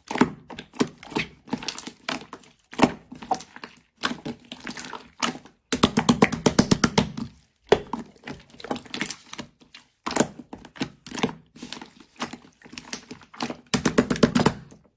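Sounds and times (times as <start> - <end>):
rapid sharp clicks and taps: 5.7 - 7.9, 13.7 - 14.7.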